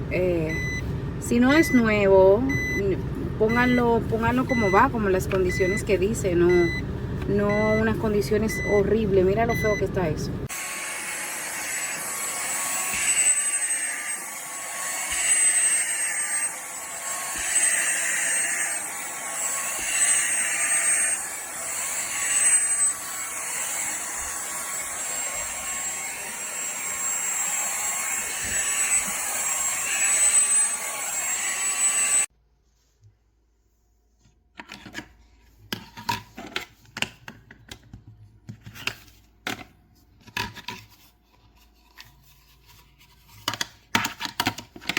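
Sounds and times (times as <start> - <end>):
handheld vacuum whining: 0.5 - 32.3.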